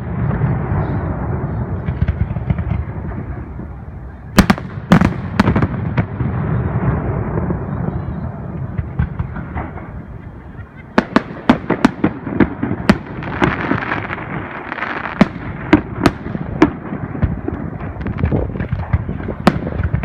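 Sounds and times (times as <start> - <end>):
fireworks crackling rumble: 0.0 - 20.0
sharp loud firework bangs: 4.4 - 10.2, 11.0 - 20.0.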